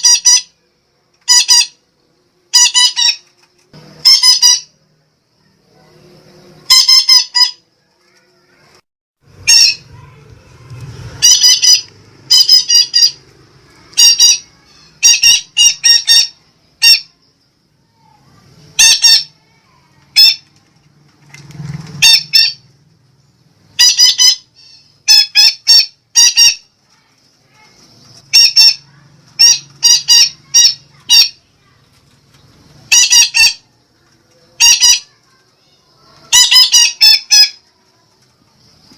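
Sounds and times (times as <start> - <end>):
parakeet shrill calls: 0.0 - 0.6, 1.2 - 1.8, 2.5 - 3.2, 4.0 - 4.7, 6.6 - 7.6, 9.4 - 10.0, 11.1 - 13.2, 14.0 - 17.2, 18.8 - 19.4, 20.1 - 20.4, 22.0 - 22.6, 23.8 - 26.7, 28.2 - 31.4, 32.9 - 33.7, 34.6 - 35.2, 36.3 - 37.6.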